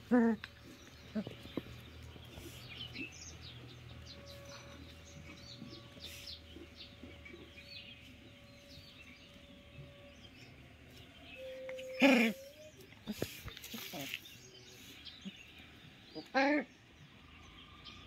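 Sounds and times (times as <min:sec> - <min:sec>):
small birds chirping: 0:00.0 - 0:18.0
faint steady tone: 0:04.0 - 0:13.6.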